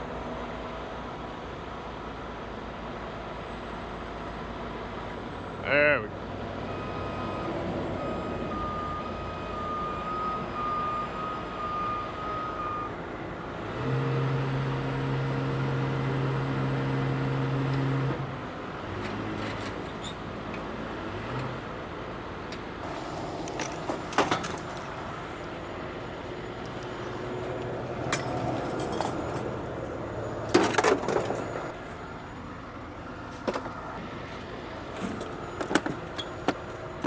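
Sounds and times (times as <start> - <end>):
heavy truck engine revving: 13.4 - 22.2.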